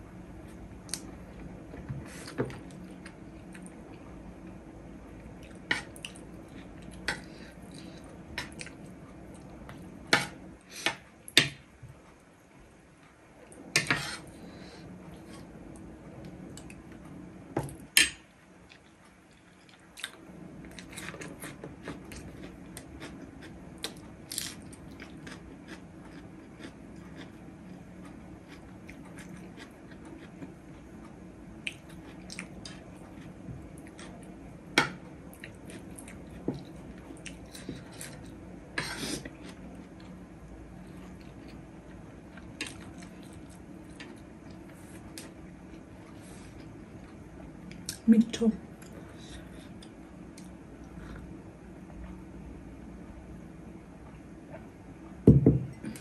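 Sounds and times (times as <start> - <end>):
low steady hum: 0.0 - 56.0
person chewing food: 18.7 - 40.2, 40.8 - 48.0, 48.8 - 52.2.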